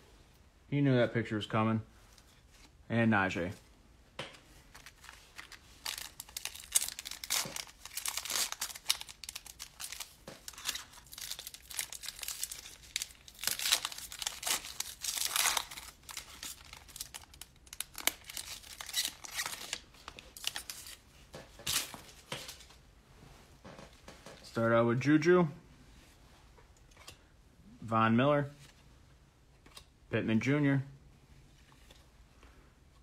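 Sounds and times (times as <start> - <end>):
plastic wrapper tearing and crinkling: 4.7 - 21.0.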